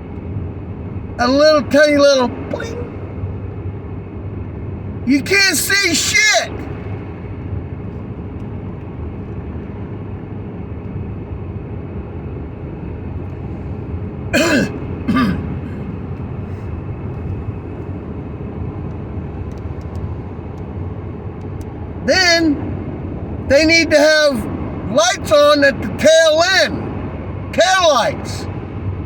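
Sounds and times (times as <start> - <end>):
road and engine noise in cab: 0.0 - 29.0
man clearing his throat: 14.3 - 16.0.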